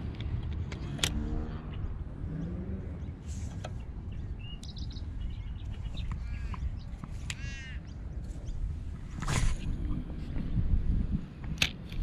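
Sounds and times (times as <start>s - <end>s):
birds chirping: 0.0s - 10.6s
wind rumbling on microphone: 0.0s - 12.0s.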